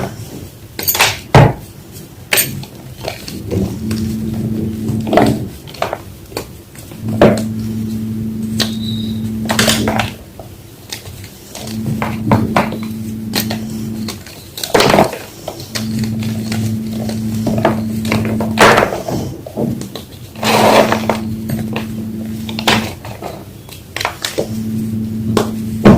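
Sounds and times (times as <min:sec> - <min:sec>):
low steady hum: 0:03.3 - 0:05.6, 0:06.9 - 0:10.2, 0:11.6 - 0:14.3, 0:15.6 - 0:19.2, 0:20.4 - 0:23.4, 0:24.4 - 0:25.9.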